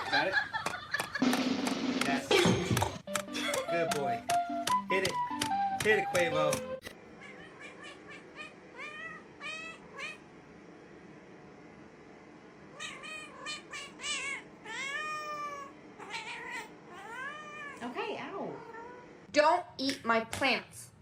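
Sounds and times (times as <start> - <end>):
cat meowing: 7.2 - 10.2, 12.7 - 19.1.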